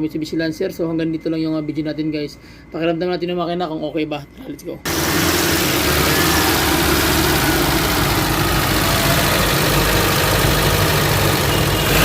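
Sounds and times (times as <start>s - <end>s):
car engine idling: 4.9s - 12.0s.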